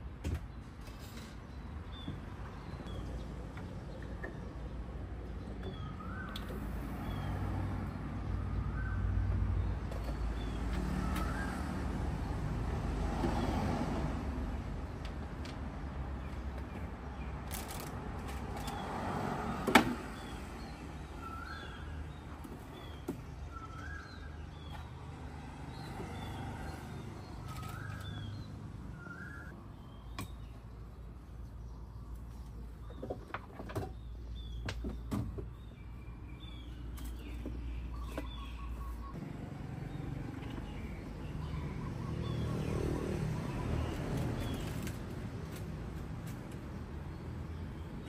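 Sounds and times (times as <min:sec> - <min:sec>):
faint high bird chirps: 0:27.4 - 0:30.6, 0:35.8 - 0:39.2.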